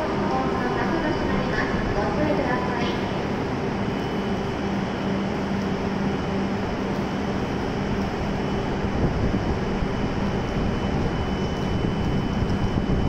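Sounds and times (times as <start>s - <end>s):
electrical hum: 0.0s - 13.0s
faint high whine: 0.0s - 13.0s
fan noise: 0.0s - 13.0s.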